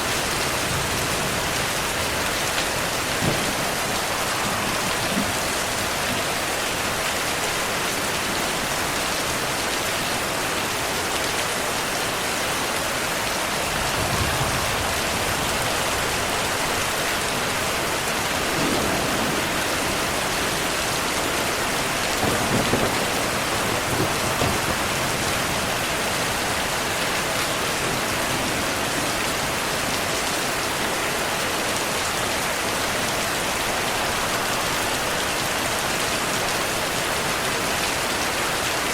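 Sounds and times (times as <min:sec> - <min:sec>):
heavy rain falling: 0:00.0 - 0:38.9
thunder rolling: 0:00.5 - 0:06.6, 0:13.7 - 0:25.9.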